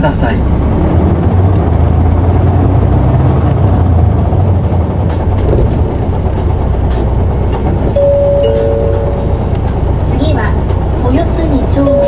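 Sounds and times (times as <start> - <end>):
bus diesel engine: 0.0 - 12.0
sharp clicks and rattles: 9.3 - 11.2.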